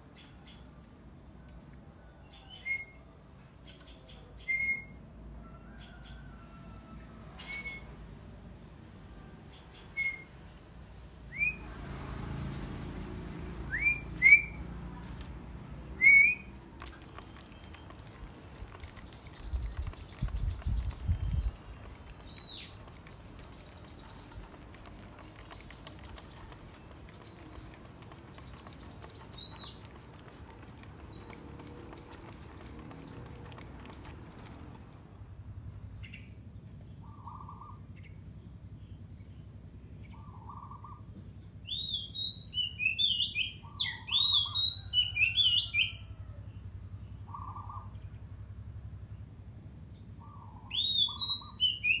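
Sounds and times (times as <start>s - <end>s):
bird whistled calls: 7.4s - 7.9s, 50.5s - 52.0s.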